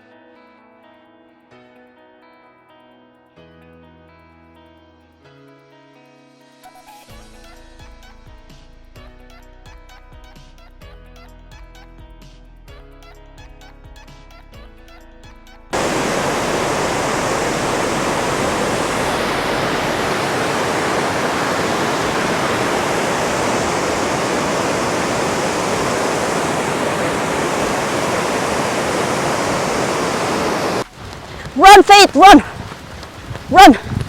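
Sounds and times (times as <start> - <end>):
waterfall rushing: 15.8 - 32.4.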